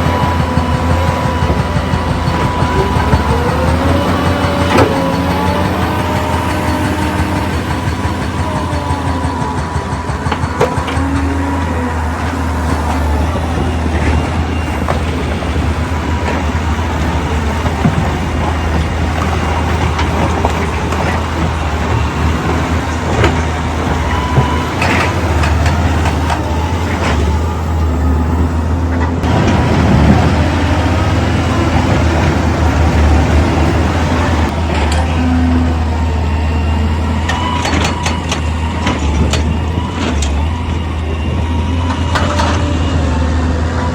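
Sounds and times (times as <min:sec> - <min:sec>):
knocks and clanks: 0:00.0 - 0:28.0, 0:37.2 - 0:43.0
diesel machinery engine hum: 0:00.0 - 0:43.9.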